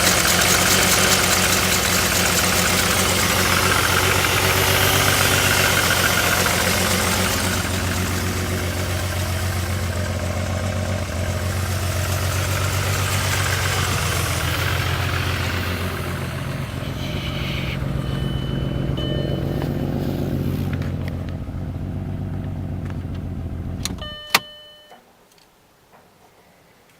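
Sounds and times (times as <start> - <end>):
car engine idling with misfire: 0.0 - 24.5
brief tone: 16.8 - 20.1, 24.0 - 25.1.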